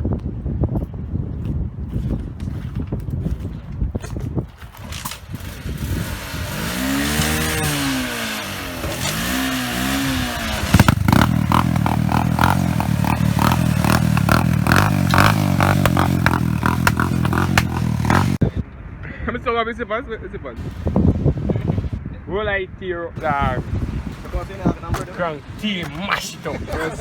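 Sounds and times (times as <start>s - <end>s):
engine revving: 5.1s - 18.4s.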